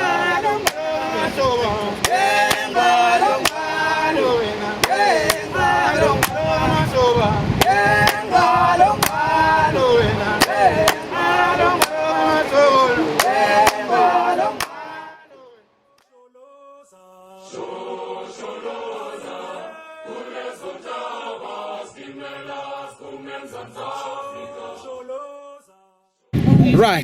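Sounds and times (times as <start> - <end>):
group singing held notes: 0.0 - 25.9
group chanting in song: 0.0 - 26.0.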